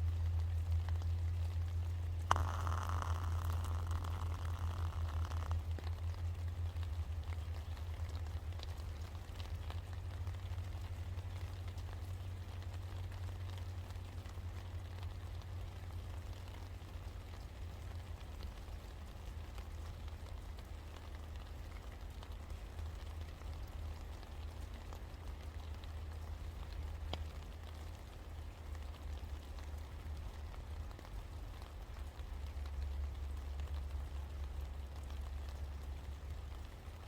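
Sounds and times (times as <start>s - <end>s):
low rumble: 0.0s - 15.6s
steady rain falling: 0.0s - 37.0s.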